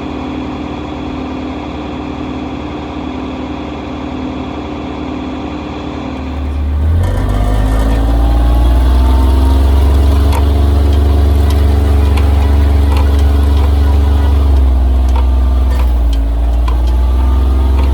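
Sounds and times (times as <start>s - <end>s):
diesel engine revving up: 6.2s - 17.9s.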